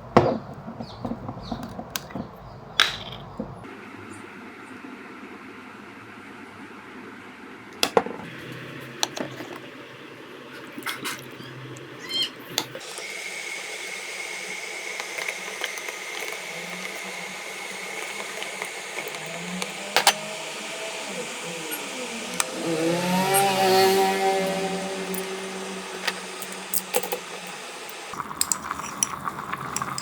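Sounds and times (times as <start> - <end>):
electric kettle heating water: 7.7 - 30.0.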